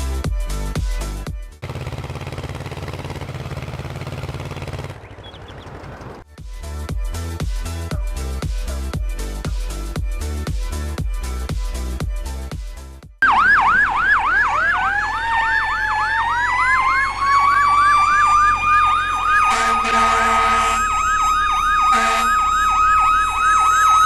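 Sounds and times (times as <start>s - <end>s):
emergency vehicle siren: 13.2s - 24.0s
horn blasts: 19.4s - 20.9s, 21.9s - 22.4s.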